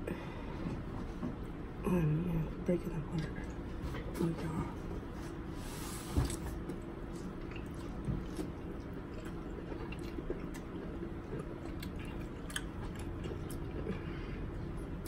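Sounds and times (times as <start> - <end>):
chewing and wet mouth sounds: 5.7 - 15.0.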